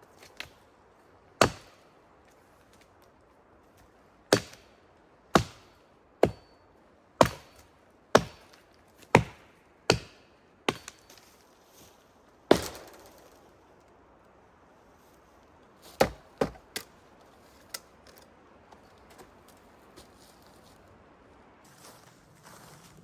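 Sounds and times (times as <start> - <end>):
axe chopping wood: 1.4 - 1.8, 4.3 - 4.7, 5.3 - 6.5, 7.2 - 11.2, 12.5 - 13.2, 16.0 - 16.9.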